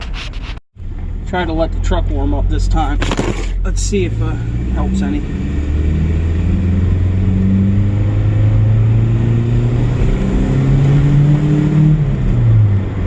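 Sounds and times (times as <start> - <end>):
pickup truck engine revving: 3.6 - 13.0.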